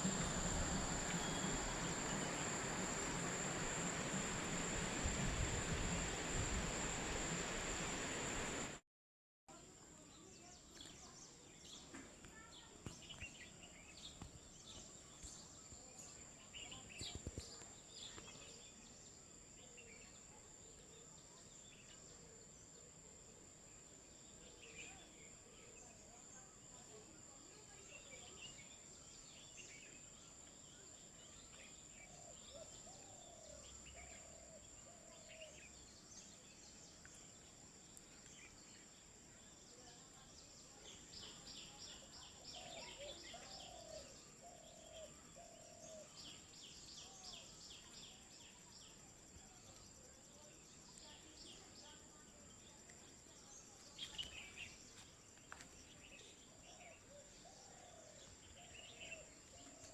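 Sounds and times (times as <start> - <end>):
steady high-pitched whine: 0.0 - 8.8.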